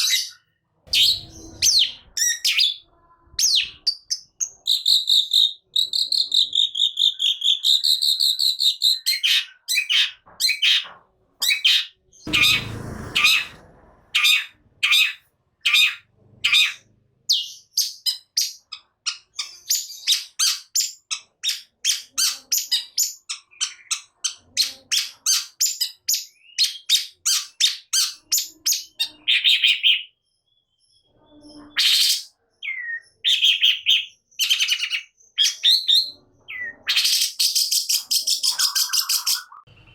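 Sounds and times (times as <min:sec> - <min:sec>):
bird singing trills and notes: 0:00.0 - 0:13.6, 0:14.2 - 0:39.9
harsh rasping bird call: 0:11.4 - 0:16.9.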